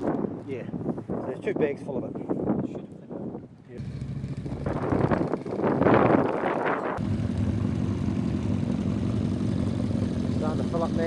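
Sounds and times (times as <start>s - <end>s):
motorcycle engine: 3.8s - 11.0s.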